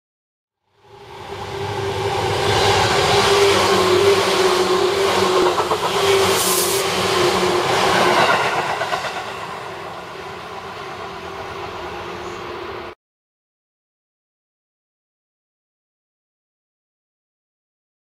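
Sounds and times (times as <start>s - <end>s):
electric train hum: 0.6s - 13.0s
wheels rushing on rail: 0.7s - 13.0s.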